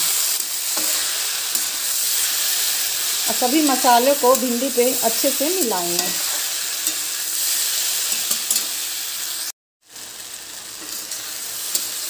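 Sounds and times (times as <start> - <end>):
spatula scraping a pan: 0.0 - 3.2, 6.0 - 8.9
vegetables sizzling in a pan: 0.0 - 12.0.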